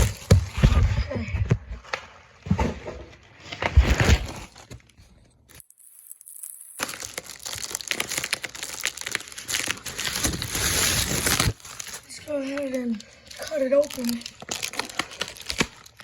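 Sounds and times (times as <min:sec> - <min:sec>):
packaging crinkling: 0:04.0 - 0:16.0.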